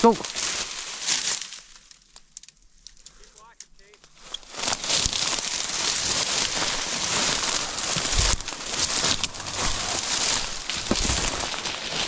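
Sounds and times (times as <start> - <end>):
dry grass rustling and crackling: 0.0 - 12.0
heavy footfalls: 6.5 - 12.0.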